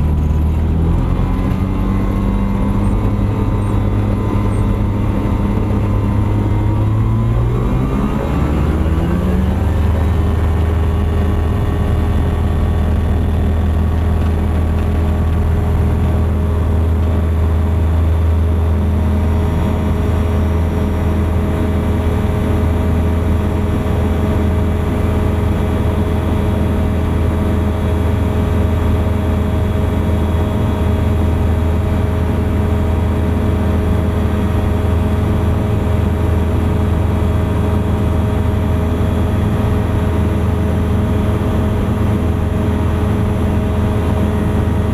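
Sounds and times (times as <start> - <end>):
ultralight aircraft engine droning: 0.0 - 44.9.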